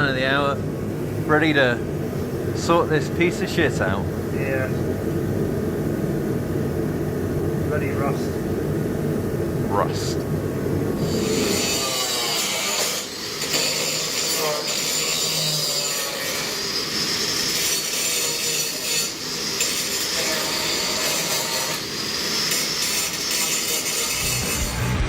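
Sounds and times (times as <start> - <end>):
power tool grinding sheet steel: 11.0 - 25.0.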